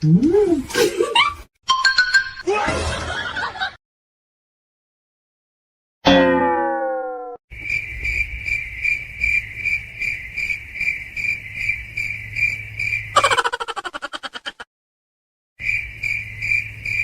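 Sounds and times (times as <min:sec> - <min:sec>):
cricket chirping: 0:07.5 - 0:14.0, 0:15.6 - 0:17.0.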